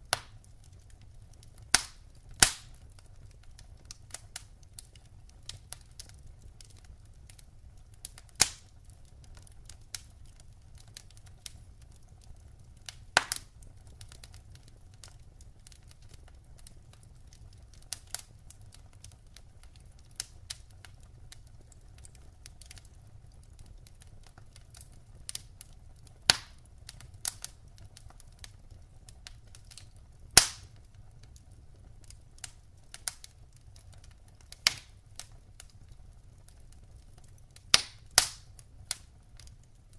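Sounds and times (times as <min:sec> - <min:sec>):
loud sharp pops of fire: 0:00.0 - 0:08.8, 0:12.8 - 0:14.5, 0:24.3 - 0:35.9, 0:36.6 - 0:39.6
burning logs crackling: 0:00.0 - 0:39.9.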